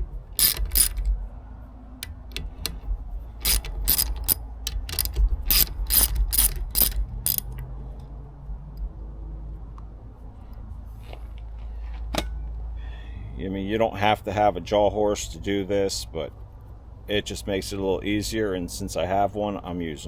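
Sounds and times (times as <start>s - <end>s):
socket ratchet clicking: 0.0s - 1.2s, 2.0s - 7.6s.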